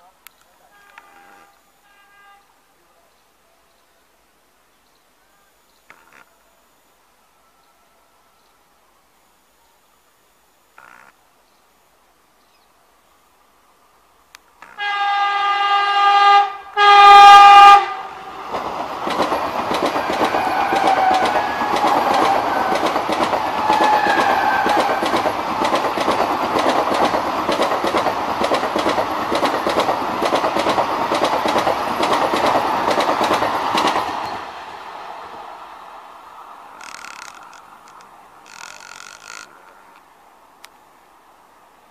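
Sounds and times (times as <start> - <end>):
train horn blasts: 0.6 - 2.7, 14.6 - 18.3, 23.5 - 25.1
train rushing past: 14.8 - 38.6
wheels clattering over rail joints: 19.0 - 34.4.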